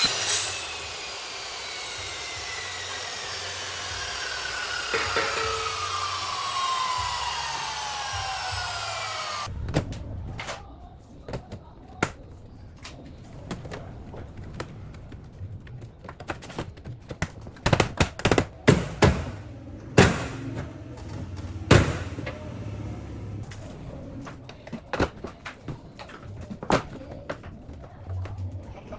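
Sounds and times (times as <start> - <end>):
power tool motor spinning down: 0.0 - 9.5, 19.5 - 23.5.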